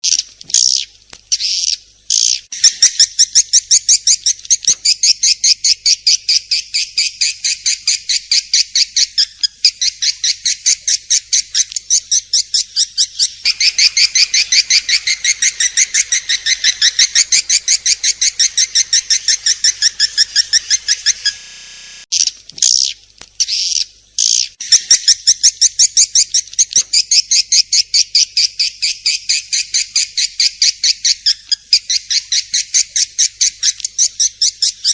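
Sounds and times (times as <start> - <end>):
swiftlet high chirps: 13.4 - 22.1.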